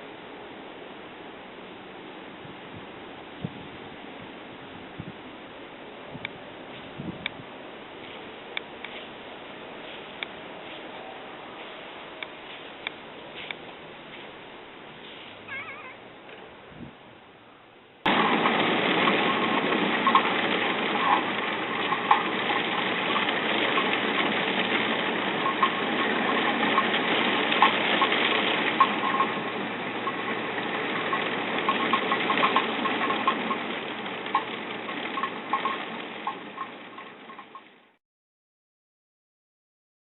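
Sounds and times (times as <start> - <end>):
heavy rain falling: 18.1 - 36.6.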